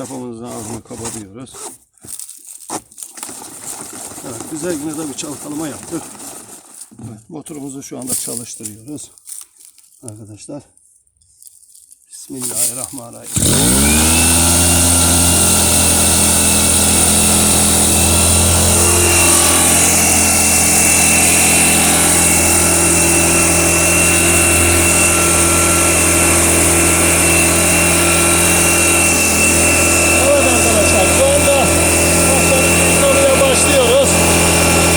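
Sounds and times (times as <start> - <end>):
small engine running: 3.2 - 6.8, 13.3 - 34.9.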